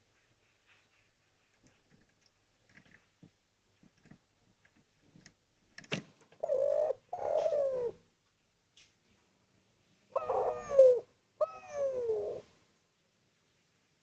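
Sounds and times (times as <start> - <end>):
dove cooing: 6.4 - 8.0, 10.1 - 12.6.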